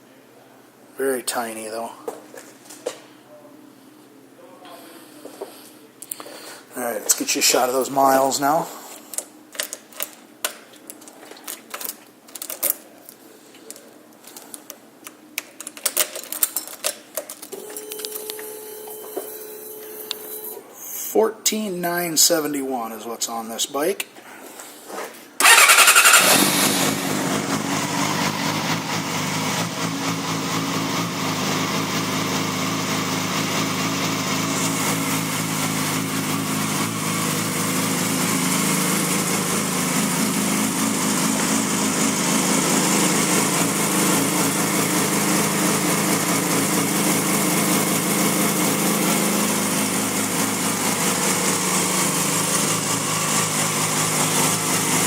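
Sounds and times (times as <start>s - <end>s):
motorcycle engine idling: 25.4s - 55.0s
motorcycle engine starting: 25.4s - 55.0s.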